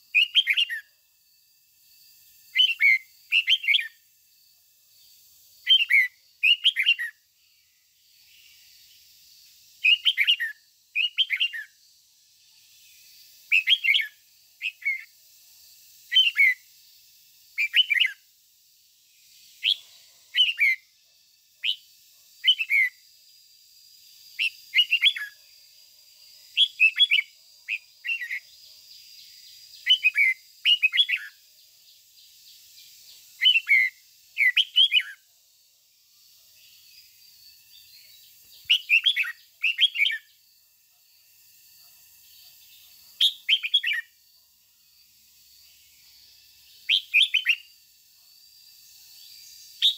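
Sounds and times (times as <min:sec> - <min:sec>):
bird singing whistled notes: 0:00.0 - 0:01.0, 0:02.2 - 0:04.1, 0:04.9 - 0:12.0, 0:12.6 - 0:18.3, 0:19.2 - 0:23.5, 0:24.3 - 0:25.4, 0:26.5 - 0:35.3, 0:36.6 - 0:40.5, 0:42.2 - 0:44.2, 0:45.6 - 0:47.8, 0:48.8 - 0:49.9.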